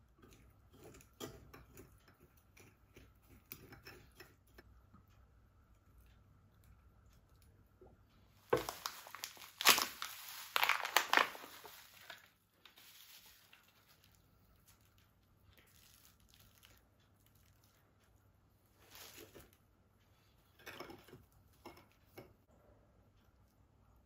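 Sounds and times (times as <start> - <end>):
crinkling and rustling: 6.0 - 22.4.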